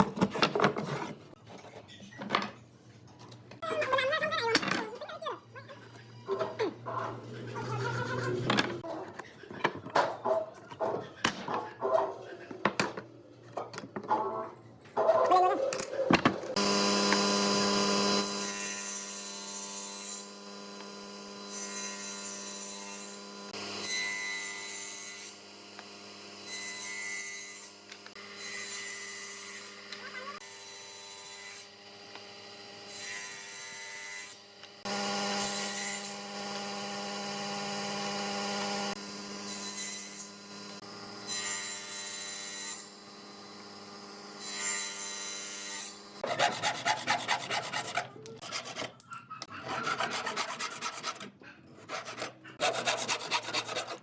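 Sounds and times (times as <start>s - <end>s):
power tool rasping wood: 16.5s - 30.4s, 31.5s - 54.0s
motor hum: 16.6s - 18.4s.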